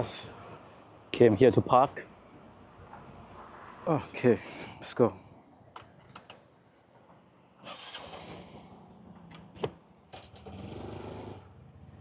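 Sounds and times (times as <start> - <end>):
motorcycle engine starting and running: 7.6 - 12.0.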